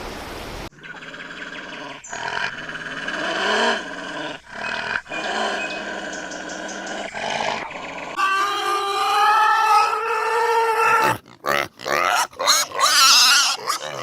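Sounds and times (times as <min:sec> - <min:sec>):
animal long pitched call: 0:08.0 - 0:11.2.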